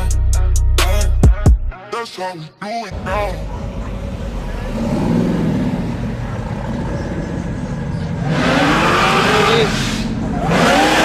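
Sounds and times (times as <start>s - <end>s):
car engine revving: 2.9s - 11.0s.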